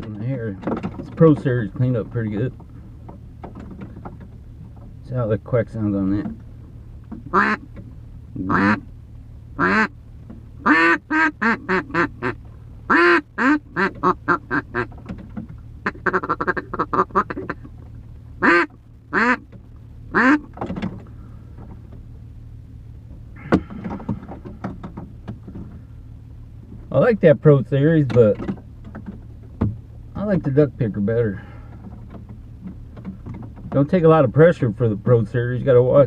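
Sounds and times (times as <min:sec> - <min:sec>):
steady low hum: 0:00.0 - 0:36.0
duck call quacking: 0:07.3 - 0:07.6, 0:08.5 - 0:08.8, 0:09.6 - 0:10.0, 0:10.6 - 0:14.9, 0:15.8 - 0:17.7, 0:18.4 - 0:19.4, 0:20.1 - 0:20.5.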